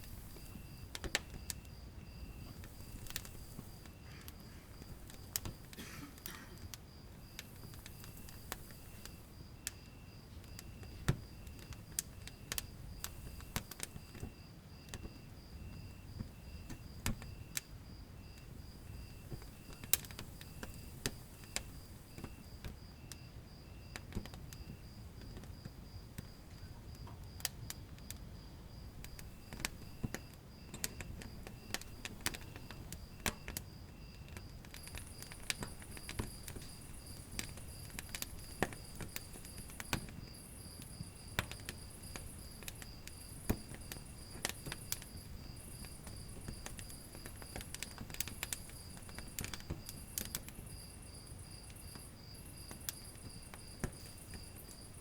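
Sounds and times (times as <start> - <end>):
crickets chirping: 0.0 - 55.0
high insect trill: 0.0 - 55.0
wood fire crackling and popping: 0.0 - 55.0.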